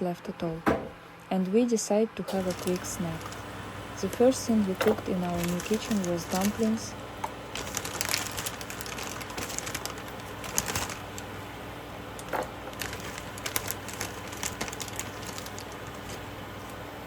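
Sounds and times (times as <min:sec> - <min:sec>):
steady low hum: 0:00.0 - 0:17.0
small rustles: 0:12.2 - 0:16.8.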